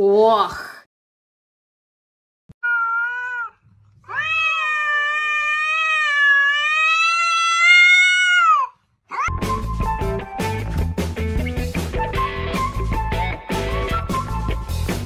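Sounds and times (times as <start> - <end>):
cat yowling: 2.6 - 9.4
rock music with guitar and drums: 9.3 - 15.0.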